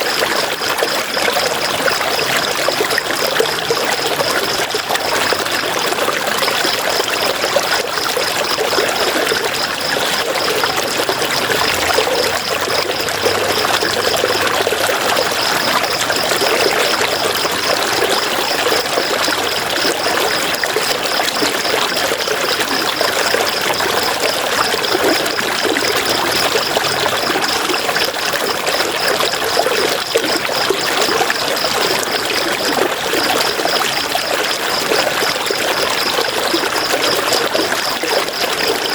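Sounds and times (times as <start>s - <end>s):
river water flowing: 0.3s - 33.7s.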